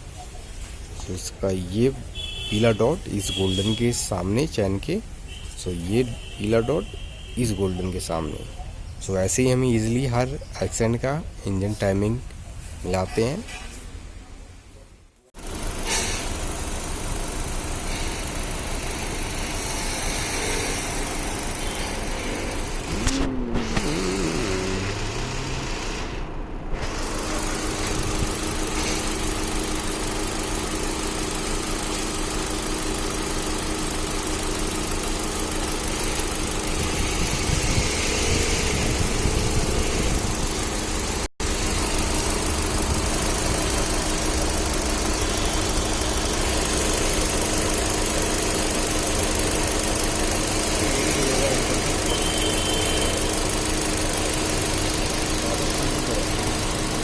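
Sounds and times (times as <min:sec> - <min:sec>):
car engine idling: 0:15.4 - 0:57.0.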